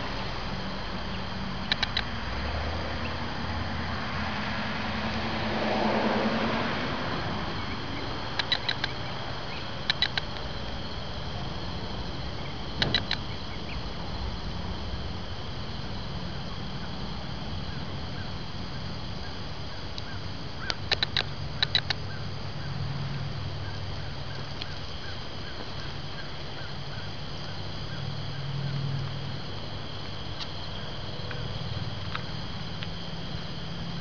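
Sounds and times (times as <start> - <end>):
low outdoor rumble: 0.0 - 34.0
small bird chirping: 7.5 - 11.0, 11.6 - 13.9.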